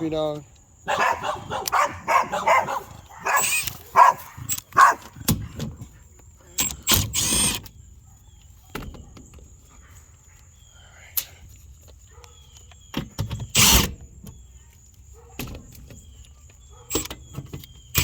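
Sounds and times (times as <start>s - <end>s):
dog barking: 0.8s - 5.2s, 12.1s - 12.4s, 15.2s - 15.5s, 16.6s - 17.0s
sharp clicks: 1.6s - 2.0s, 2.9s - 5.4s, 6.5s - 7.7s, 12.2s - 14.0s.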